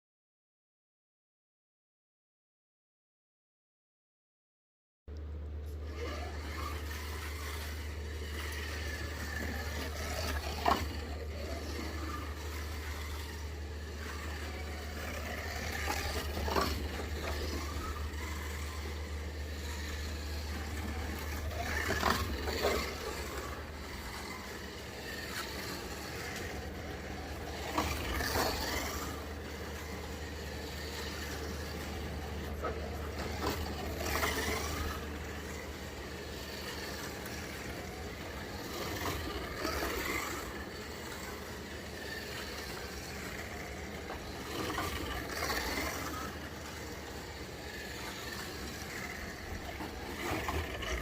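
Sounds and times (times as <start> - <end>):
gear and pickup braid noise: 5.1 - 51.0
slot car motor whine: 5.1 - 51.0
steady low hum: 5.1 - 51.0.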